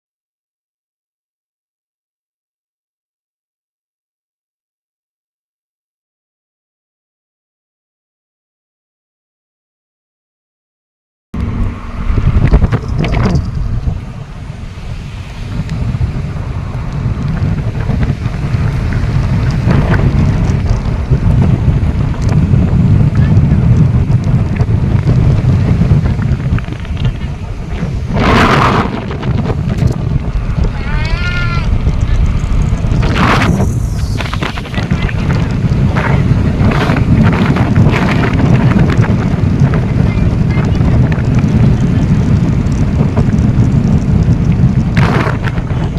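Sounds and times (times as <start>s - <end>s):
wind buffeting microphone: 11.4s - 45.9s.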